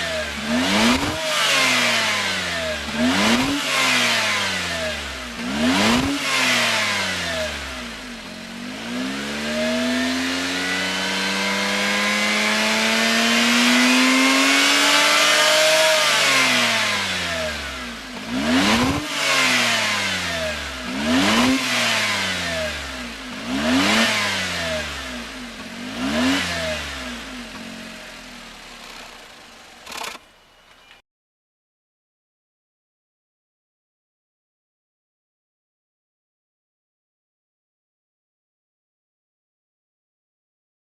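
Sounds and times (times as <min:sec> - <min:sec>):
car engine revving: 0:00.0 - 0:30.3.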